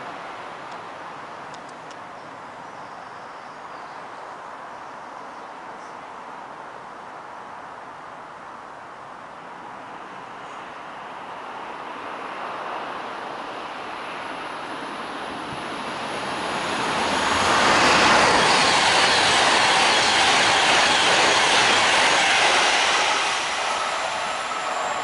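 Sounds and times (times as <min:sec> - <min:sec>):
train passing at speed: 0:08.7 - 0:25.0.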